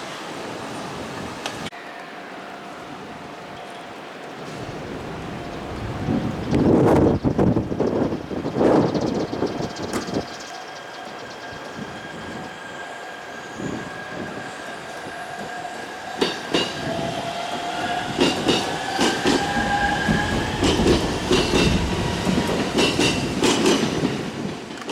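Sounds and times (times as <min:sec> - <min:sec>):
train wheels clacking over rail joints: 0:16.2 - 0:24.9.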